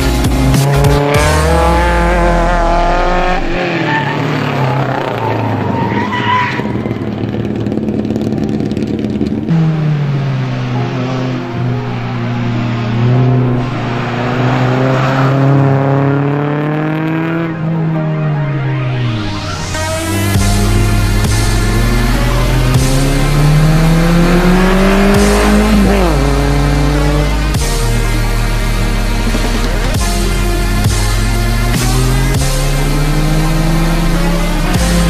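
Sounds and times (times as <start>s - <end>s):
race car engine accelerating: 0.0s - 35.0s
tyre squeal: 3.6s - 7.1s.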